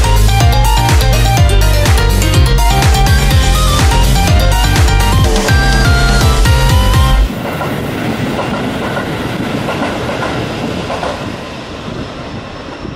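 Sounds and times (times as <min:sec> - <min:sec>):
electronic music: 0:00.0 - 0:07.3
electric train running on tracks: 0:00.0 - 0:12.9.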